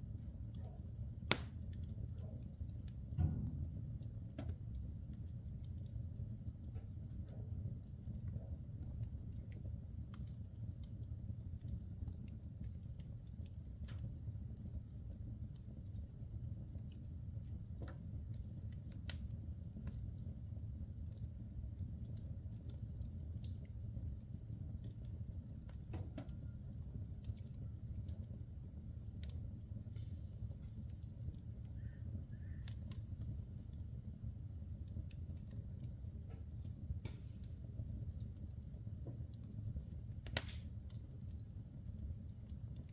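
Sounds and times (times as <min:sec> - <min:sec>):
burning logs popping: 0:00.0 - 0:42.9
wood fire crackling: 0:00.0 - 0:42.9
flames rushing: 0:01.2 - 0:01.6, 0:28.3 - 0:38.7, 0:39.5 - 0:41.0.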